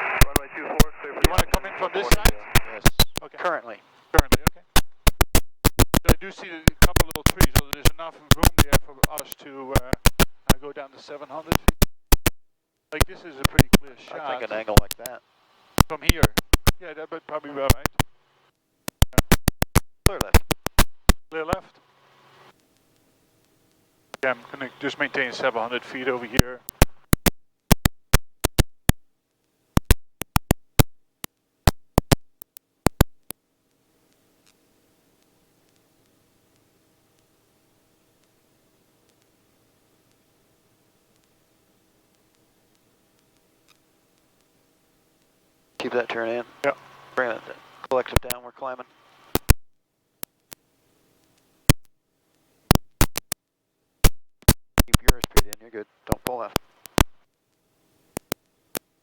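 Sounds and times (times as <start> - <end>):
sharp irregular clicks: 4.2 - 10.6, 26.4 - 29.0, 29.8 - 33.4, 47.8 - 48.4, 49.3 - 49.6, 54.4 - 58.9.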